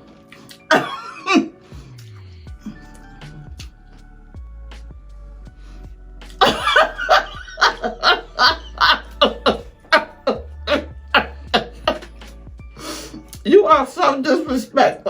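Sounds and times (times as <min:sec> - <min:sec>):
quiet background music: 0:00.0 - 0:15.0
person laughing loudly: 0:06.4 - 0:12.0.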